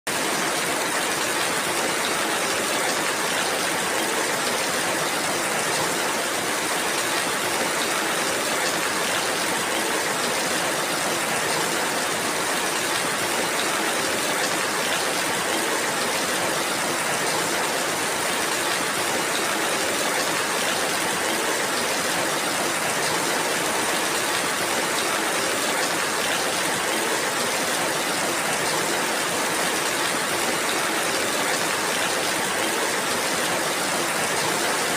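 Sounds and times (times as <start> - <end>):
steady rainfall: 0.1 - 34.9.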